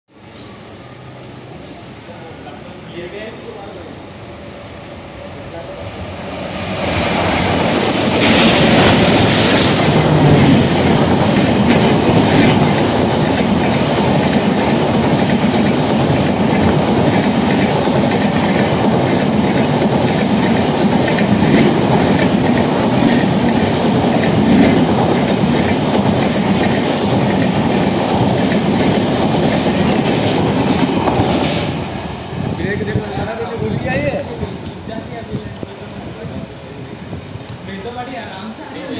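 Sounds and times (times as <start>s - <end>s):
diesel train passing at speed: 0.1s - 38.9s
wheels clattering over rails: 6.8s - 31.5s.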